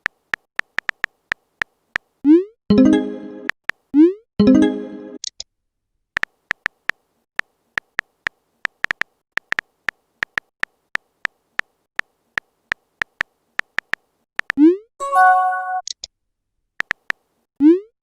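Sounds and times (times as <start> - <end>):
phone keyboard typing clicks: 0.0 - 1.2, 8.7 - 10.5, 13.0 - 14.6, 16.8 - 17.2.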